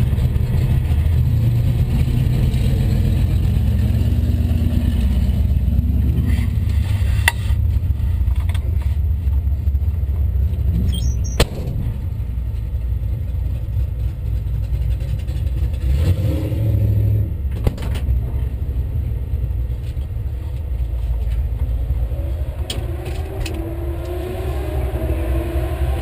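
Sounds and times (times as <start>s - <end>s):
car engine idling: 0.0s - 16.0s
rising whine: 21.5s - 26.0s.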